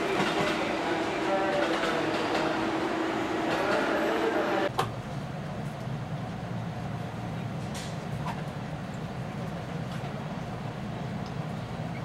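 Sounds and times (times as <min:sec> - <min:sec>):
electric train humming: 0:00.0 - 0:04.7.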